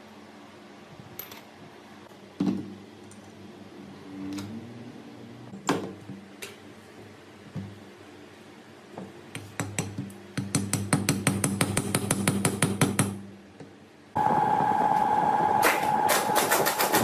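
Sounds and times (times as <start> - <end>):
faint steady hum: 13.1 - 16.5.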